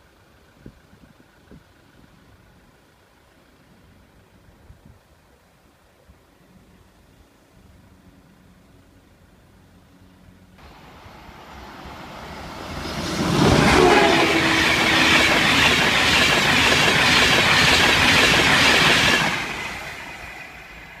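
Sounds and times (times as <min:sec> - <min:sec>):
train passing at speed: 0:10.6 - 0:21.0.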